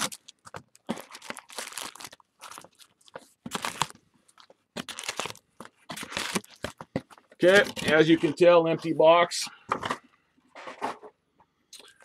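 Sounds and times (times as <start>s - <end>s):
plastic wrap and cardboard crinkling: 0.0s - 8.3s.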